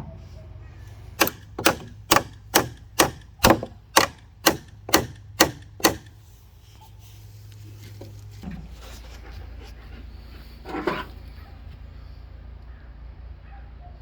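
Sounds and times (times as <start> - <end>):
hammer strikes: 1.2 - 6.2.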